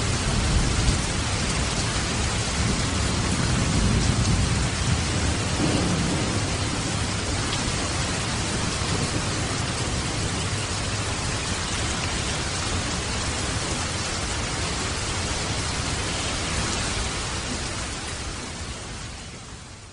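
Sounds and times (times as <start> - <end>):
light rain: 0.0 - 19.9
low rumble: 5.3 - 10.0.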